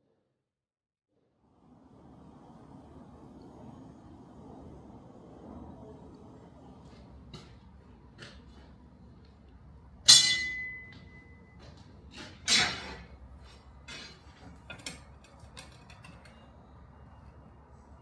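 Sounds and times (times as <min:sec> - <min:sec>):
metal clanking on metal: 0:10.1 - 0:11.2, 0:12.1 - 0:16.5.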